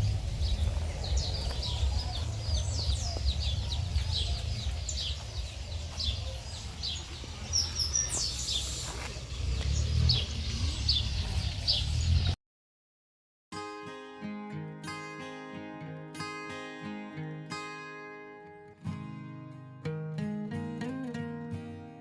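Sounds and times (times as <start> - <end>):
birds chirping: 0.0 - 12.4
steady low rumble: 0.0 - 12.4.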